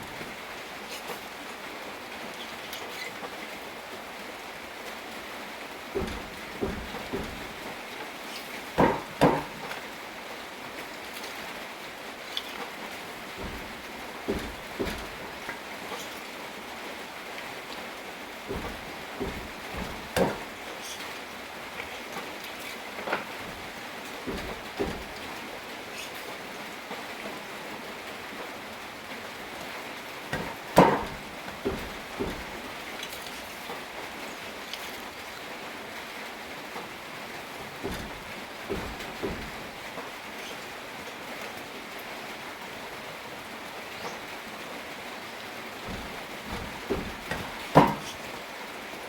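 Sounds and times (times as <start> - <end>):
steady rain: 0.0 - 49.0
knocks: 5.9 - 7.8, 8.4 - 9.9, 13.3 - 16.0, 18.5 - 21.0, 23.0 - 25.4, 30.3 - 32.8, 37.6 - 40.1, 45.8 - 48.3.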